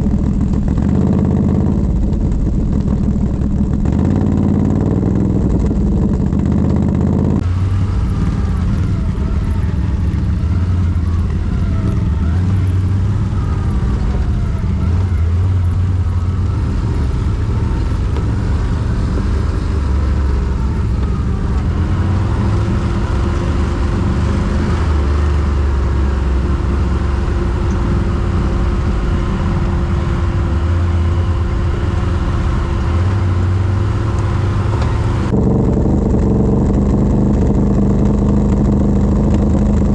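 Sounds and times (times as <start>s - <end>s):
quad bike engine running: 0.0s - 39.9s
steady whine: 0.0s - 39.9s.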